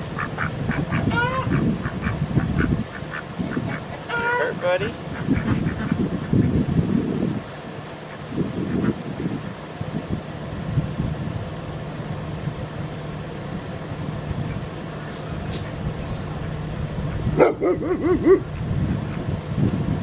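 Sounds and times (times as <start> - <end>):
duck quacks: 0.0 - 6.6
idling vehicle engine hum: 0.0 - 20.0.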